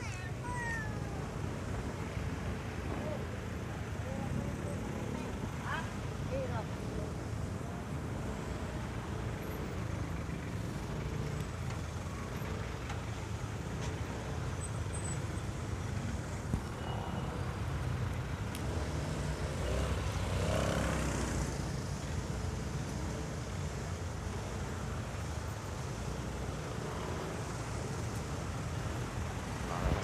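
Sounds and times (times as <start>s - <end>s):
motorcycle engine and wind rumble: 0.0s - 30.0s.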